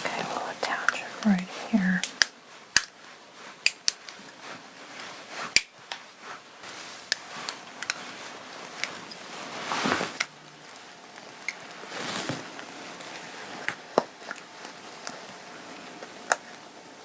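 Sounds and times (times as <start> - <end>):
fabric rustling: 0.0 - 10.2, 10.8 - 13.6.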